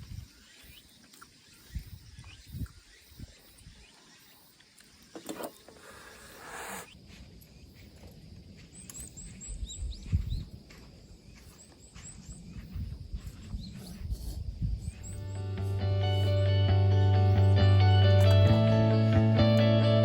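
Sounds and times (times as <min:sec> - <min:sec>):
small bird chirping: 0:00.0 - 0:10.6, 0:11.3 - 0:16.5.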